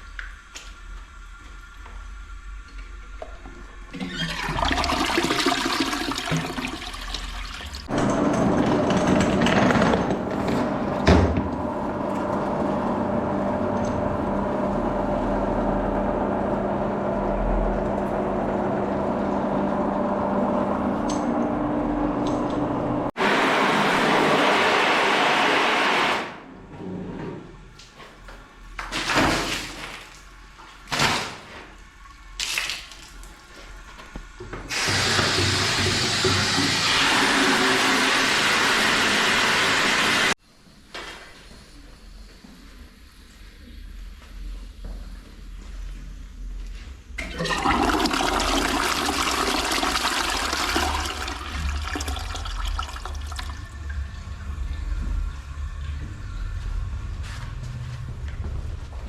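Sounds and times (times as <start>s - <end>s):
toilet flushing: 1.5s - 26.5s, 34.7s - 40.4s, 47.2s - 55.2s.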